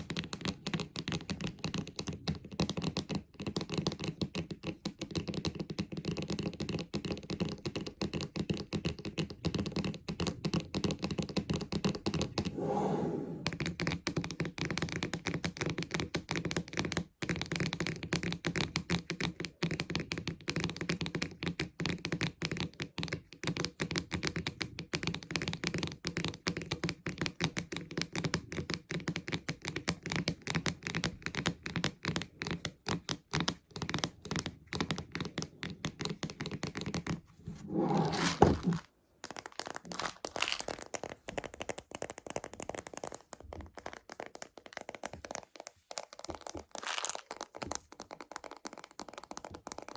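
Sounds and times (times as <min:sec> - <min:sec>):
plastic container rattling: 0:37.6 - 0:41.0, 0:45.9 - 0:48.7.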